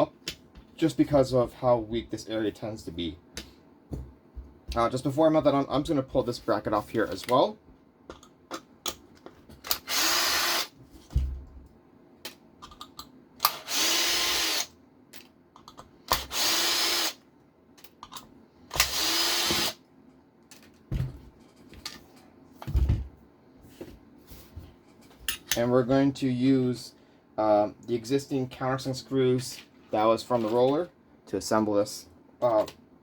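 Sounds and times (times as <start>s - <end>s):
electric screwdriver running: 9.8s - 10.7s, 13.5s - 14.7s, 16.2s - 17.2s, 18.8s - 19.8s
small parts and tools clicking: 12.2s - 16.6s.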